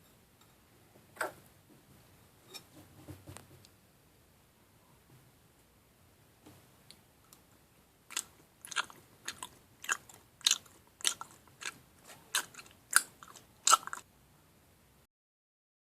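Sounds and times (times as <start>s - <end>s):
person chewing: 8.1s - 14.1s.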